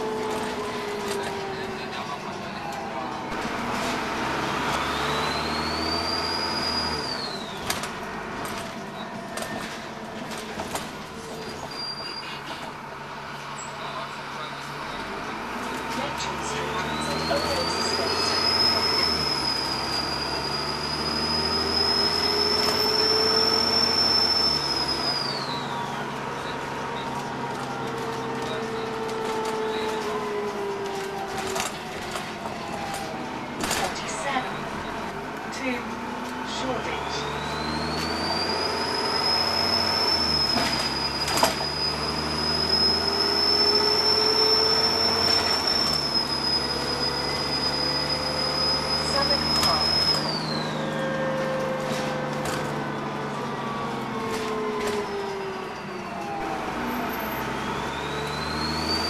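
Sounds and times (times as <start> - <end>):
diesel engine: 0.0 - 59.0
turbocharger whistle: 4.6 - 7.7, 16.4 - 26.6, 36.5 - 59.0.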